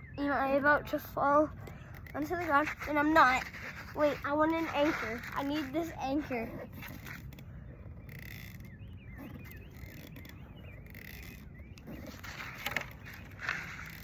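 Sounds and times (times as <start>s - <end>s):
small bird chirping: 0.0s - 14.0s
brief rustles: 11.0s - 14.0s.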